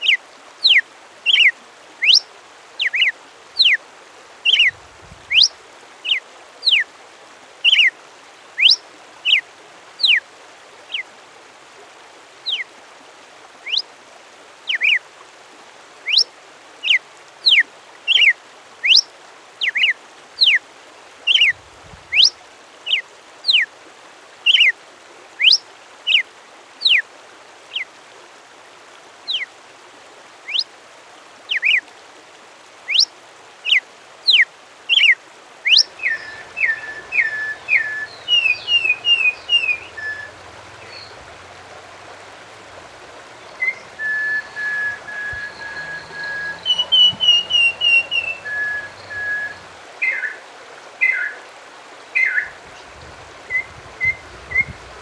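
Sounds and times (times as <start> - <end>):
songbird whistling sharp notes: 5.3 - 5.5, 35.7 - 50.3, 53.5 - 55.0.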